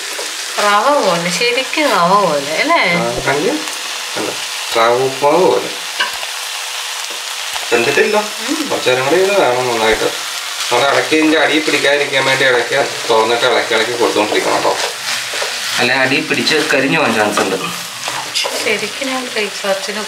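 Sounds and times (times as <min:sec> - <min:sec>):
food sizzling in a pan: 0:00.0 - 0:20.0
wavering voice-like pitched sound: 0:08.4 - 0:08.8
wooden spatula scraping a pan: 0:13.8 - 0:18.8.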